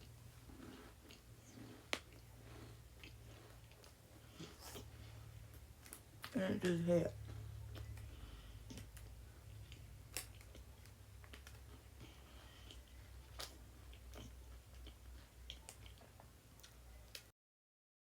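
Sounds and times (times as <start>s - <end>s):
faint low hum: 0.0s - 17.3s
person chewing food: 0.0s - 17.3s
wet mouth clicks: 7.7s - 17.3s.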